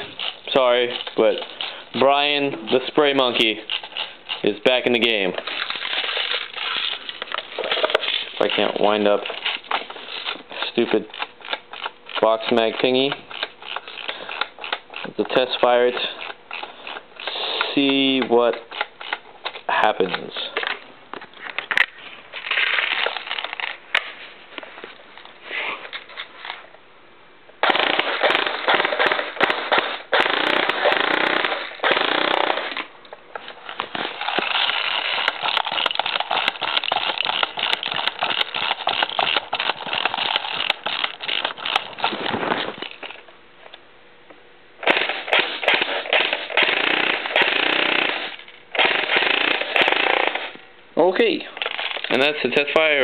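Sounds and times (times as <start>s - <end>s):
airsoft gun firing full auto: 27.6s - 32.8s, 44.8s - 50.5s.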